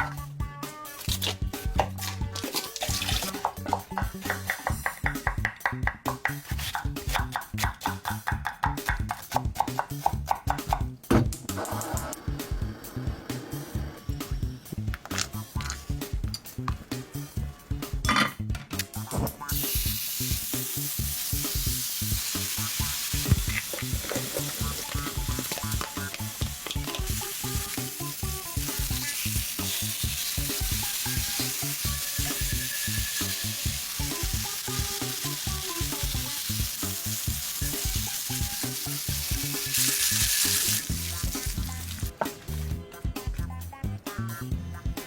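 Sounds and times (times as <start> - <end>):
background music: 0.0 - 45.0
meat sizzling in a pan: 1.0 - 3.6, 19.5 - 42.2.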